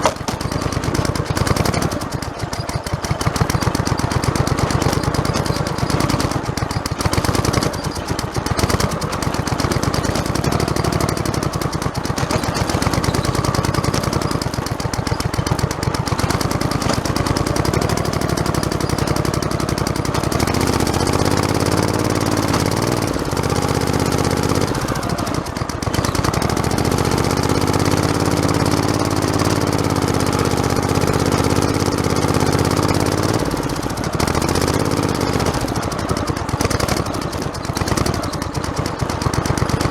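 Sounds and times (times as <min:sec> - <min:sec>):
fast rattle: 0:00.0 - 0:39.9
lawn tractor engine running: 0:00.0 - 0:39.9.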